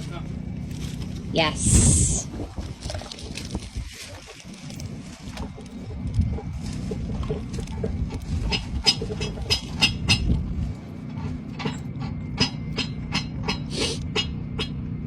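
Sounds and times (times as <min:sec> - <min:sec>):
heavy machinery engine humming: 0:00.0 - 0:15.0.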